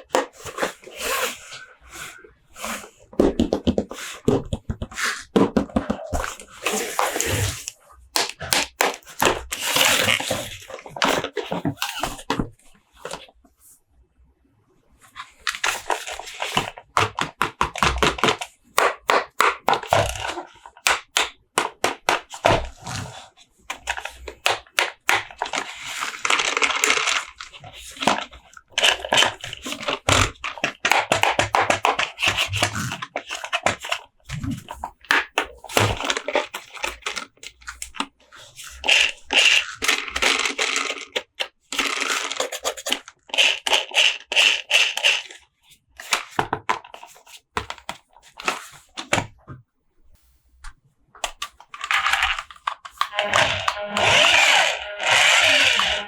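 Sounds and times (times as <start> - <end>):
plastic and cardboard packaging crinkling: 3.7 - 13.3, 23.8 - 49.1, 51.3 - 56.0.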